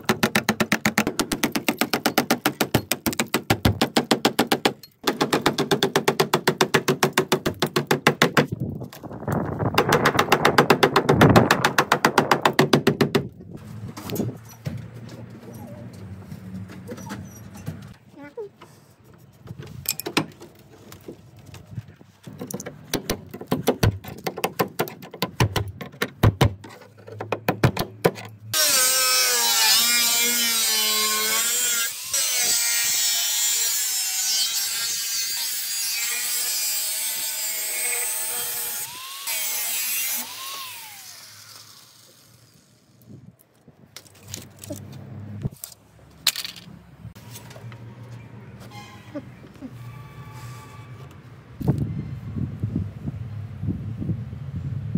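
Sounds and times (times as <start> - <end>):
power tool grinding metal: 28.6 - 42.8.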